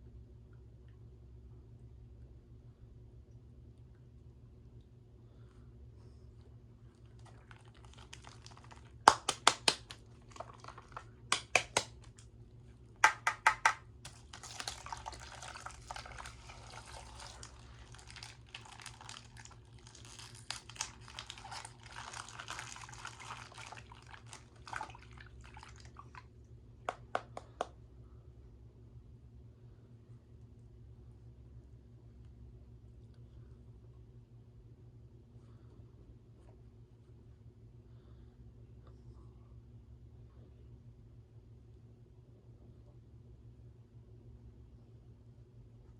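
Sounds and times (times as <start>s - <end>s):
plastic crinkling: 7.1s - 12.2s, 14.1s - 25.3s
liquid sloshing: 14.1s - 26.3s.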